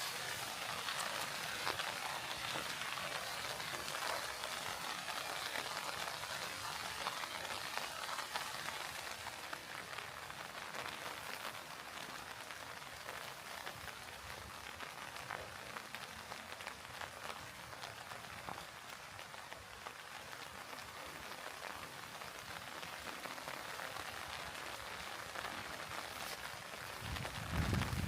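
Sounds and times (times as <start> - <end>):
rain pattering: 0.0 - 28.0.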